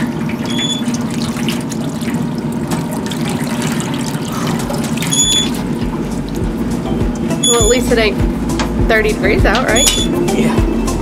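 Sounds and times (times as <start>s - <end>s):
water running and splashing: 0.0s - 7.9s
washing machine hum: 0.0s - 11.0s.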